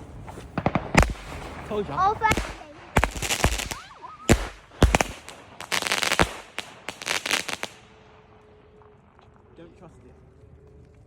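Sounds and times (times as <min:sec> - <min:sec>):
firework bangs: 0:00.0 - 0:09.3
firework hissing bursts: 0:00.2 - 0:07.8.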